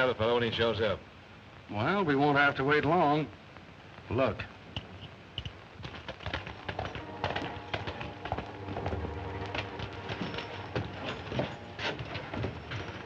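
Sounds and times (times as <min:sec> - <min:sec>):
horses clip-clopping on hard ground: 0:04.7 - 0:13.0.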